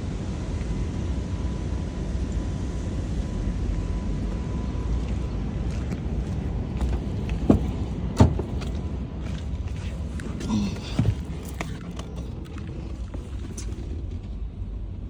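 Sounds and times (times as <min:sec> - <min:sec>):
vehicle rumble: 0:00.0 - 0:15.0
sharp knocks and clicks: 0:06.8 - 0:08.8.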